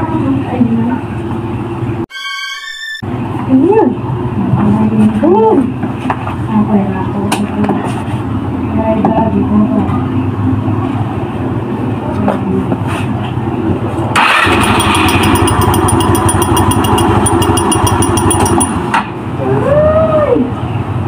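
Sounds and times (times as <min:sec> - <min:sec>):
scooter engine running: 0:14.2 - 0:18.9
fast metallic clattering: 0:14.3 - 0:18.8.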